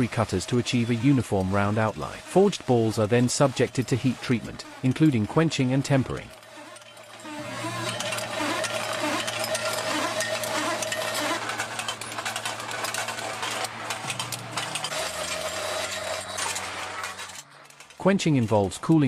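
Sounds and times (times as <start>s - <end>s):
machinery humming: 0.0s - 18.0s
small metal clicks clattering: 6.2s - 19.0s.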